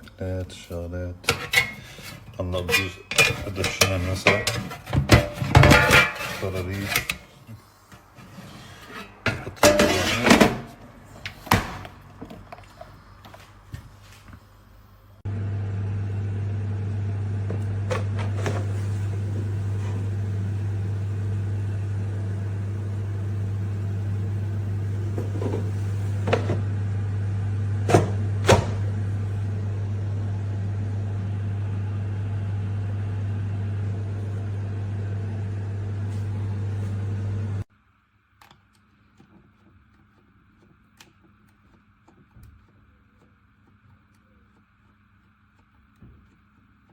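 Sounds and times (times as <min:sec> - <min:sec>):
air fryer humming: 0:15.2 - 0:37.7.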